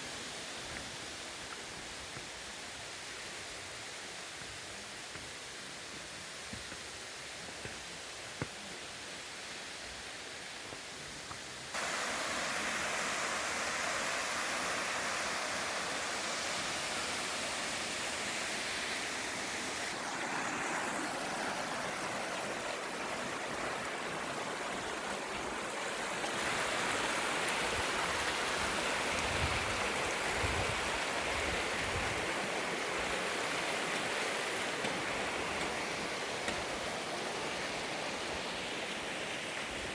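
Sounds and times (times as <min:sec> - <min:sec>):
mountain stream flowing: 0:00.0 - 0:39.9.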